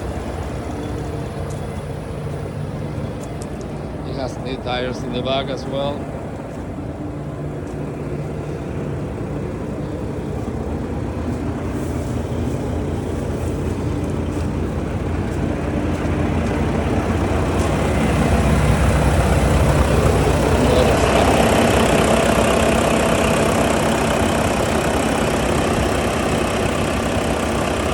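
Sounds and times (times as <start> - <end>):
truck diesel engine running: 0.0 - 27.9.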